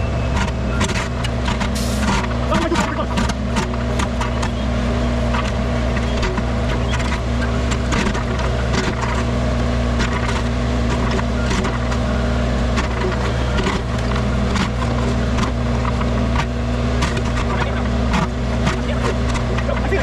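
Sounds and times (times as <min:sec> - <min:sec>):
excavator engine running under load: 0:00.0 - 0:20.0.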